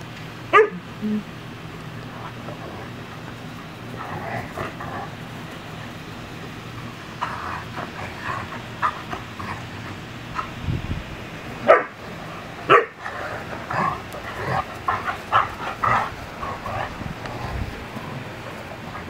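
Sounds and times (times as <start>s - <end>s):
dogs barking: 0.5s - 0.8s, 11.6s - 17.0s.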